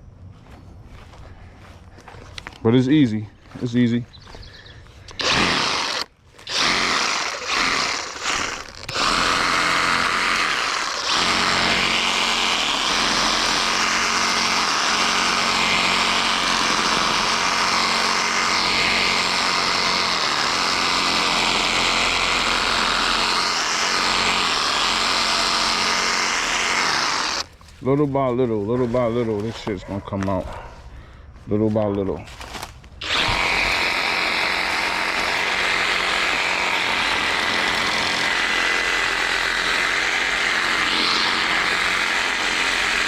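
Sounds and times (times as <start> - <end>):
reciprocating saw cutting branches: 5.0 - 27.5, 33.0 - 43.0.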